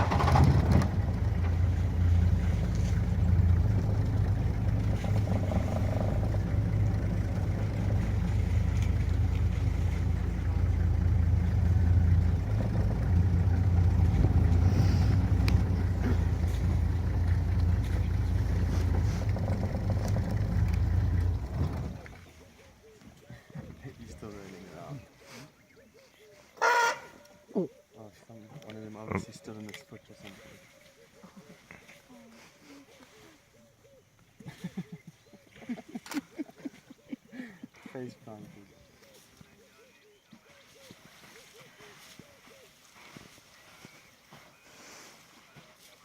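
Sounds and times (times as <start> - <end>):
vehicle engine droning: 0.0 - 22.5.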